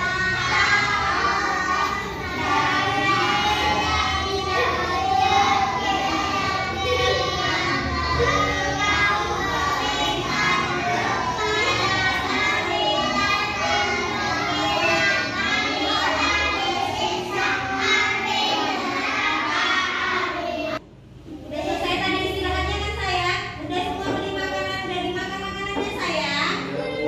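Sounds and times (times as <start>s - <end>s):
children singing: 0.0s - 20.8s, 26.5s - 27.0s.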